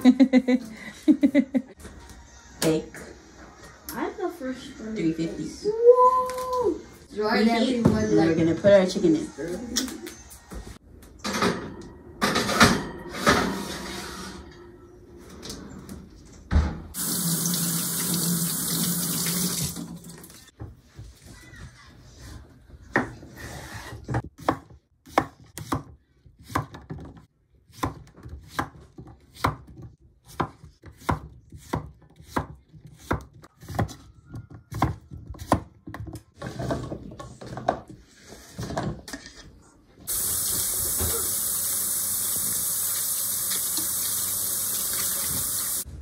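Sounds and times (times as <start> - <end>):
knife chopping on cutting board: 27.7 - 34.0.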